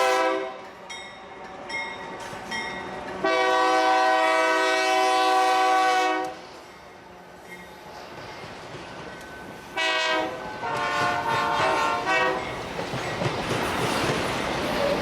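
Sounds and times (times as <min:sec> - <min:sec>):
locomotive air horn blasts: 0:00.0 - 0:00.6, 0:03.2 - 0:06.4, 0:09.8 - 0:12.4
train rushing past: 0:00.0 - 0:15.0.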